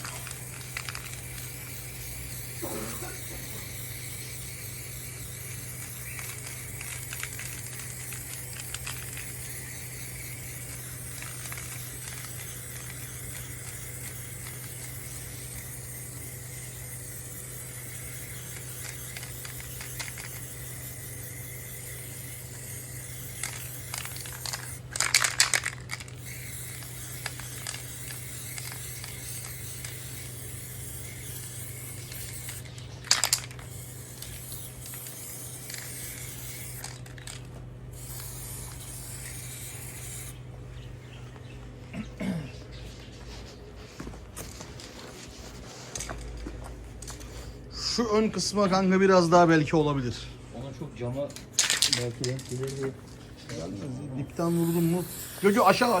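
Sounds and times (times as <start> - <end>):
aerosol spraying: 0.0 - 40.4, 54.3 - 56.0
spray can rattling: 0.0 - 40.4, 51.3 - 53.6, 54.3 - 56.0
steady low hum: 0.0 - 56.0.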